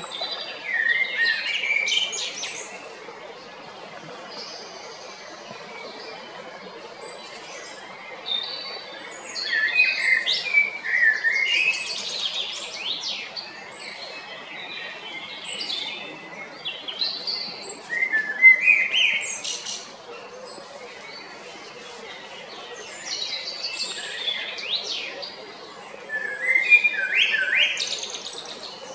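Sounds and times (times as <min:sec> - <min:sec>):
blackbird singing: 0:09.2 - 0:20.4, 0:21.0 - 0:28.9.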